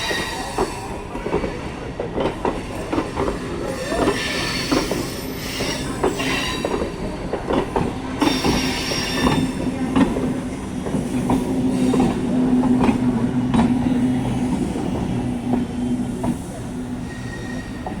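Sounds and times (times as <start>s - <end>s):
electric train low hum: 4.7s - 18.0s
high-pitched wheel squeals: 17.0s - 18.0s.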